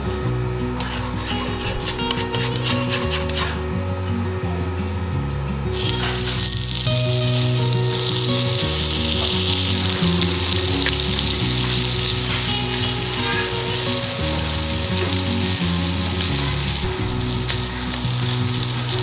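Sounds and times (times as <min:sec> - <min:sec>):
background music: 0:00.0 - 0:19.0
food sizzling in a frying pan: 0:05.8 - 0:19.0.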